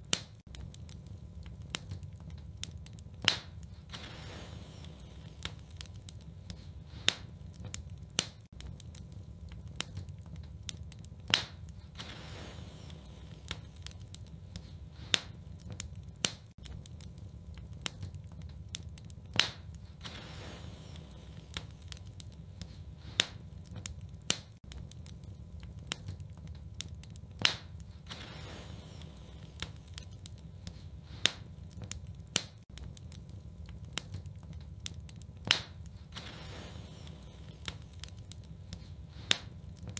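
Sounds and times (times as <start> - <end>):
fireplace fire crackling: 0.0 - 39.9
low rumble of flames: 0.0 - 39.9
sharp pops of fire: 0.0 - 39.9.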